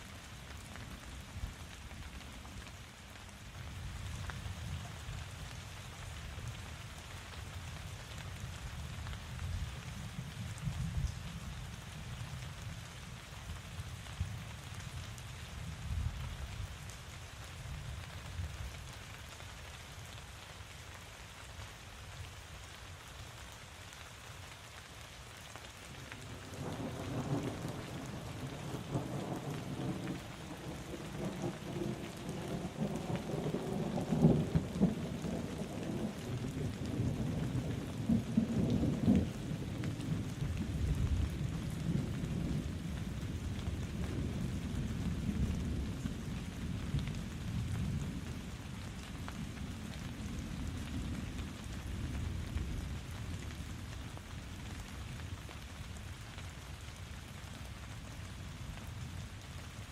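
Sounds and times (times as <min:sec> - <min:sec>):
steady rain falling: 0:00.0 - 0:59.9
thunder rumbling: 0:26.2 - 0:46.7.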